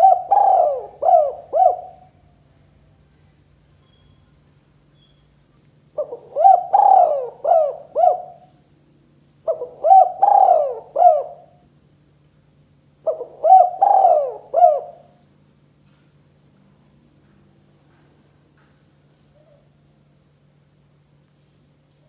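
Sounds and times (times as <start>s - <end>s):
dove cooing: 0.0s - 2.2s, 6.0s - 8.5s, 9.4s - 11.6s, 13.0s - 15.2s.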